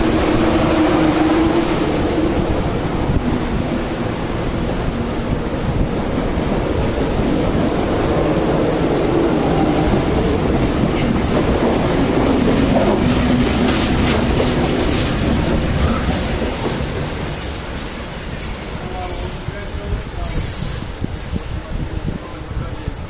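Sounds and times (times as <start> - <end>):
train rumbling on rails: 0.0 - 23.0
wheels clattering over track: 10.3 - 18.4.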